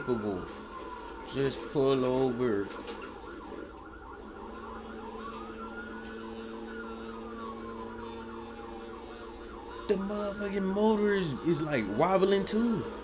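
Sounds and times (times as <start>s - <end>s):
police car siren: 0.0s - 13.0s.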